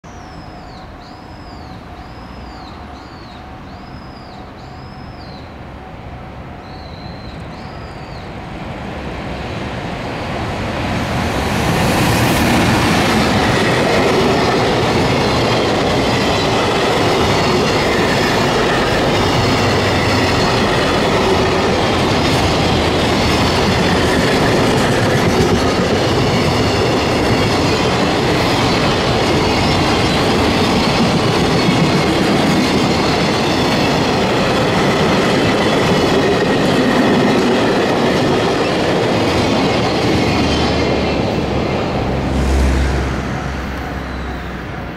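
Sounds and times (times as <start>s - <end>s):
locomotive rumble: 10.0s - 44.9s.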